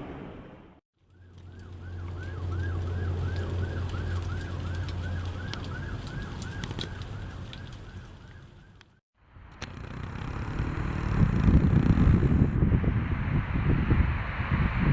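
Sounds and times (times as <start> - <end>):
siren yelping: 1.1 - 8.8
low engine drone: 9.2 - 13.3.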